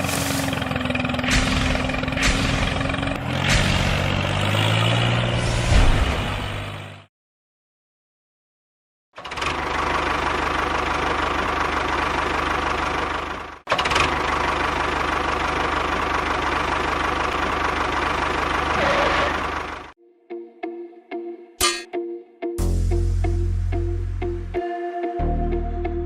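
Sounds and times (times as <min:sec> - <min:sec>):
engine running steadily: 0:00.0 - 0:04.8, 0:09.2 - 0:19.9.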